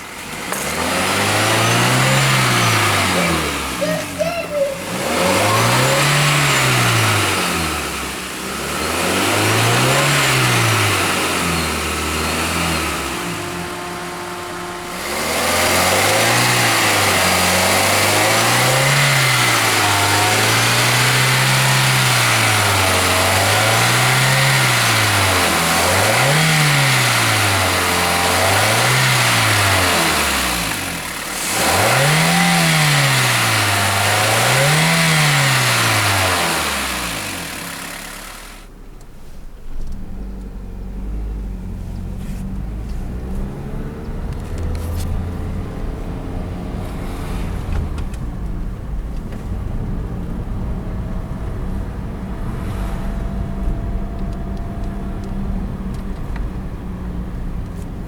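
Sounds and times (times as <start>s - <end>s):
car engine revving: 0.0s - 58.0s
high-pitched engine whine: 0.5s - 38.7s, 49.5s - 57.5s.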